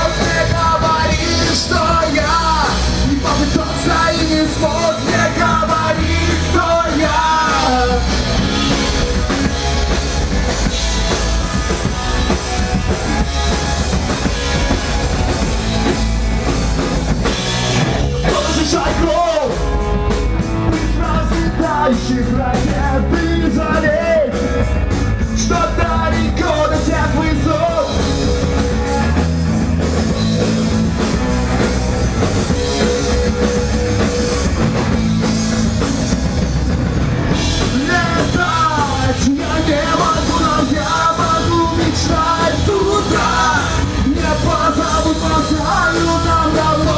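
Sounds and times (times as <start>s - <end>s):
person singing: 0.0s - 8.4s, 18.2s - 19.7s, 20.7s - 24.6s, 37.6s - 46.9s
punk rock band playing: 0.0s - 46.9s.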